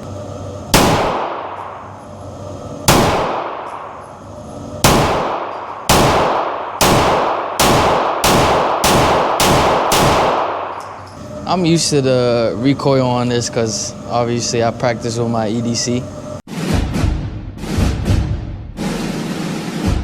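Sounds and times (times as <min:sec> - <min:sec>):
pistol shots echoing indoors: 0:00.8 - 0:01.9, 0:02.9 - 0:04.1, 0:04.8 - 0:11.0.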